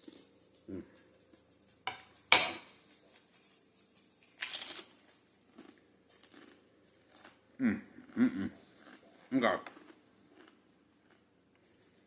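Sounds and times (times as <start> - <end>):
metal spoon clinking on bowl: 1.8 - 3.0.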